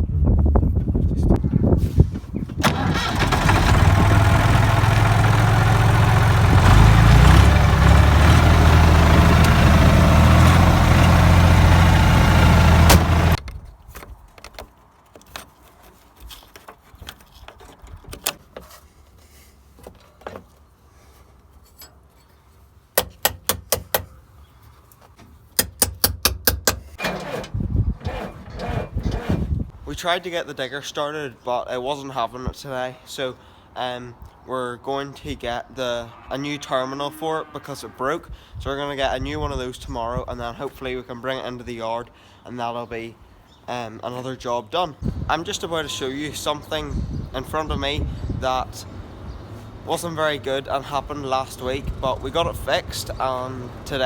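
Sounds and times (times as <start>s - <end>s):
engine running loudly: 2.7s - 13.4s.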